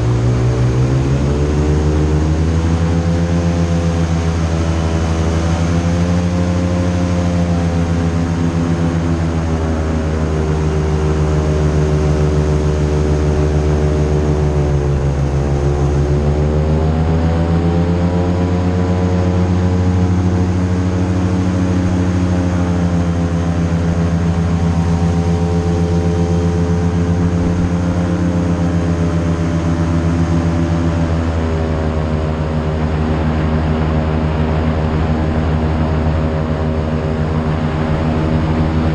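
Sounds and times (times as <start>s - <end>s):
airboat engine and propeller: 0.0s - 38.9s.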